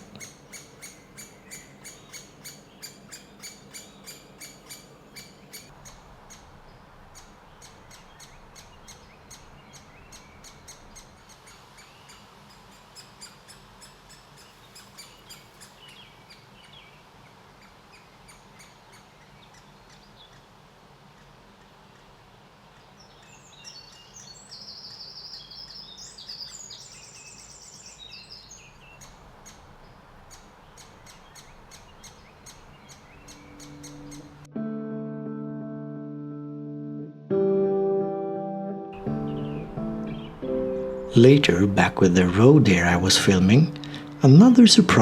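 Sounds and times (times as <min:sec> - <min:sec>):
woodpecker nestlings begging calls: 0:00.0 - 0:16.9, 0:22.8 - 0:34.5, 0:39.0 - 0:45.0.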